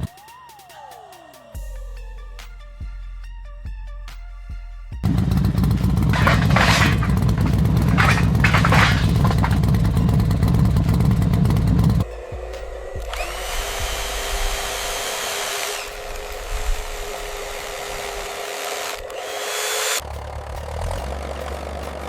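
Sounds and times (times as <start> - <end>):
loud low machine rumble: 5.0 - 18.3
high motor whir with hum: 12.9 - 20.0.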